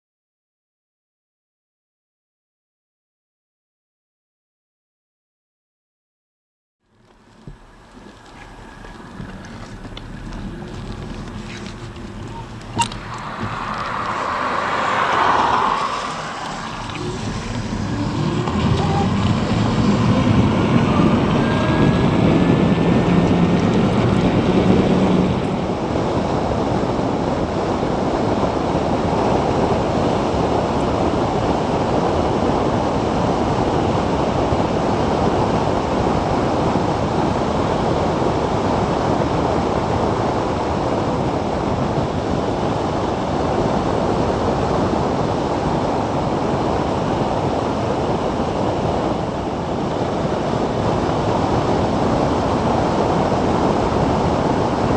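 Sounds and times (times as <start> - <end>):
tyre and road noise: 6.8 - 54.9
low hum: 7.0 - 27.0
wind rushing over microphone: 7.2 - 54.9.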